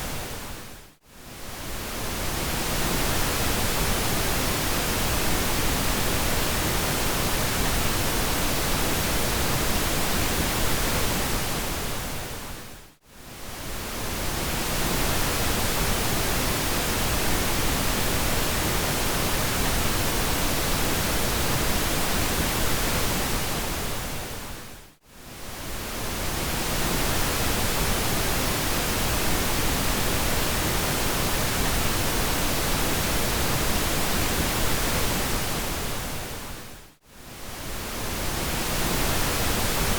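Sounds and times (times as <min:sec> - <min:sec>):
pink noise hiss: 0:37.2 - 0:39.9.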